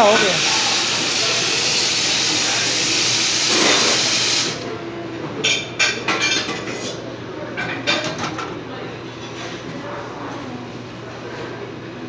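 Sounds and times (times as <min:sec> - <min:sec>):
espresso machine steam hissing: 0:00.0 - 0:04.7.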